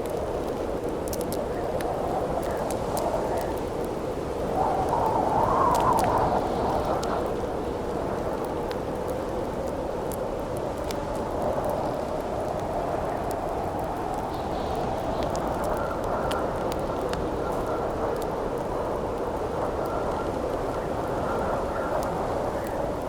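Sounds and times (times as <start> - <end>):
campfire crackling: 0.0 - 23.0
howling wind: 0.0 - 23.0
faint whistle in the wind: 1.8 - 8.5, 11.4 - 23.0.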